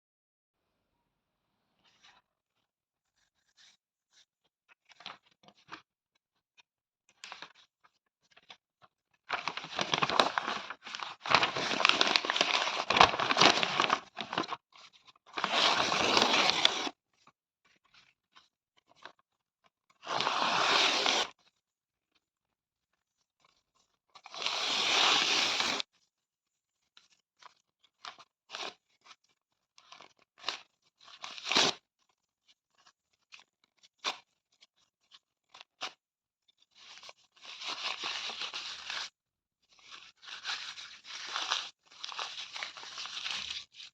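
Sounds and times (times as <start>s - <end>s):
paper crackling: 9.3s - 14.6s
paper tearing: 9.8s - 14.5s, 15.4s - 16.9s, 20.0s - 21.3s.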